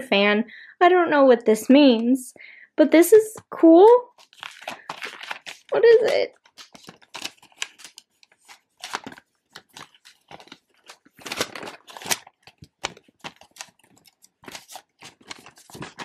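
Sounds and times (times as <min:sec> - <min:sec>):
paper packaging crinkling: 0:04.0 - 0:16.0.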